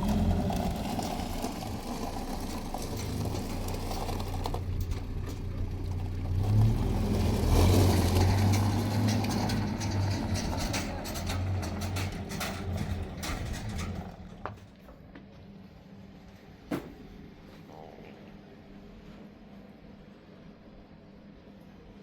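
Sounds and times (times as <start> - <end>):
car engine droning: 0.0 - 14.7
road noise: 0.0 - 16.4.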